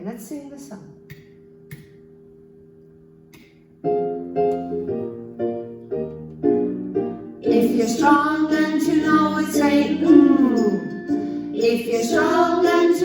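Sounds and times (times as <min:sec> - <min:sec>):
piano-like keyboard chords: 0:03.8 - 0:13.0.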